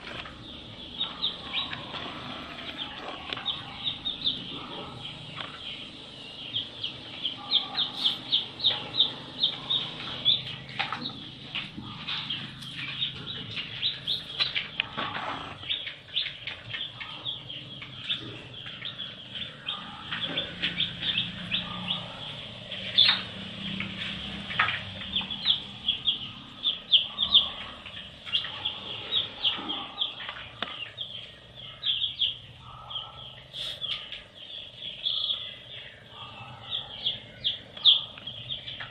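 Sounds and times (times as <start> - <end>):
baby chicks peeping: 0.0 - 38.9.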